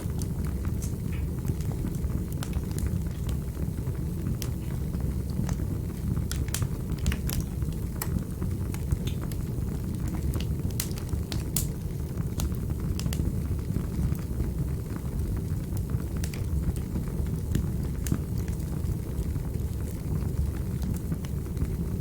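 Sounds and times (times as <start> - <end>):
burning wood crackling and popping: 0.0 - 22.0
fire flames rumbling: 0.0 - 22.0.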